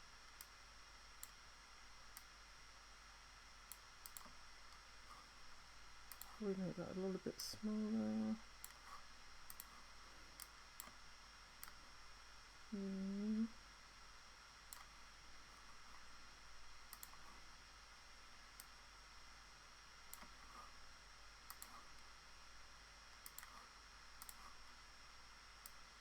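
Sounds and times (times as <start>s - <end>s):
low steady hiss: 0.0s - 26.0s
computer mouse clicks: 1.2s - 1.4s, 2.1s - 2.3s, 3.7s - 5.2s, 6.0s - 6.4s, 8.6s - 11.0s, 11.6s - 11.8s, 14.7s - 16.1s, 16.8s - 17.5s, 18.5s - 18.8s, 20.0s - 20.8s, 21.4s - 22.1s, 23.2s - 24.8s, 25.6s - 25.9s.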